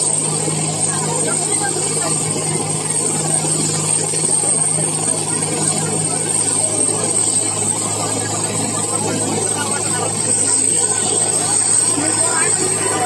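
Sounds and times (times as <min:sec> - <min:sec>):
helicopter engine and rotor: 0:00.0 - 0:13.0.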